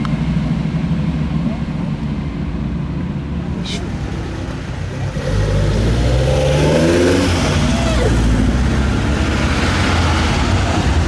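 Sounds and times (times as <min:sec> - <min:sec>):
car engine accelerating: 0:03.1 - 0:11.0.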